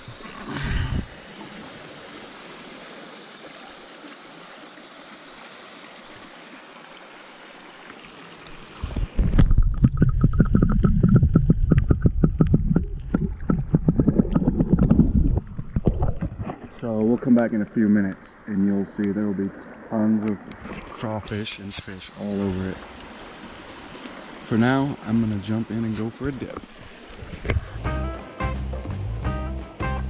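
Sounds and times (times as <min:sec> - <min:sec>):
creek water flowing: 0:00.0 - 0:30.0
muffled low rumble with knocking: 0:09.6 - 0:16.4.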